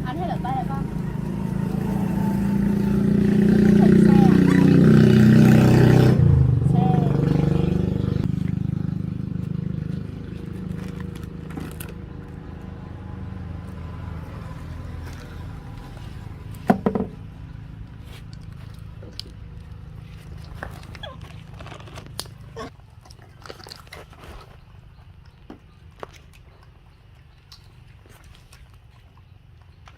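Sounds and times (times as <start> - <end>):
motorbike engine humming: 0.0 - 18.7.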